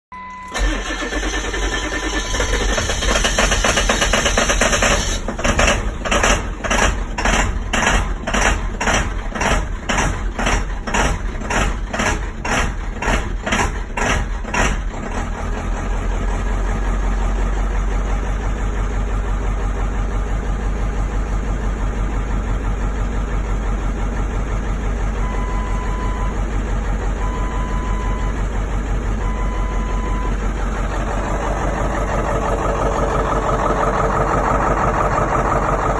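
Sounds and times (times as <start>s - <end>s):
short beeps: 0.1s - 0.6s, 25.2s - 26.4s, 27.2s - 28.4s, 29.2s - 30.4s
diesel engine idling: 0.2s - 35.9s.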